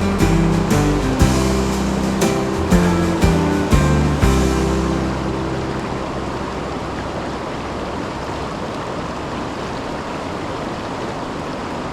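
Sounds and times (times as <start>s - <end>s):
music track: 0.0s - 7.3s
river water over waterfall: 0.0s - 11.9s.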